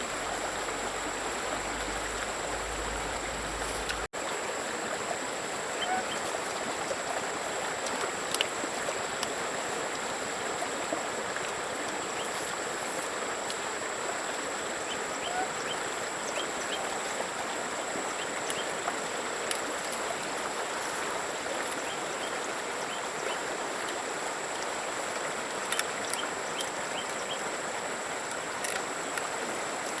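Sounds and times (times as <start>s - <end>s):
stream running: 0.0s - 30.0s
small chirps and clicks: 25.6s - 27.3s, 28.3s - 30.0s.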